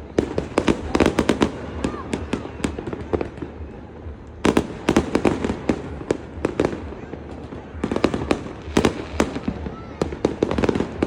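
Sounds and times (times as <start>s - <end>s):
fireworks cracks and bangs: 0.0s - 11.0s.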